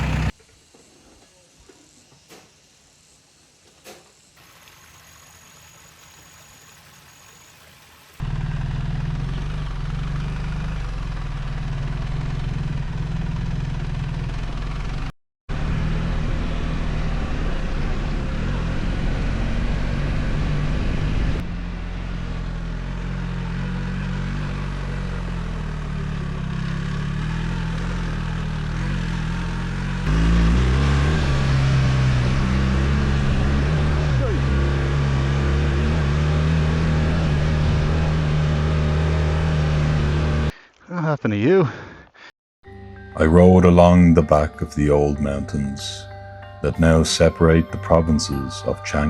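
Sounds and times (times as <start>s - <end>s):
motorcycle engine running: 0.0s - 0.4s, 8.2s - 40.5s.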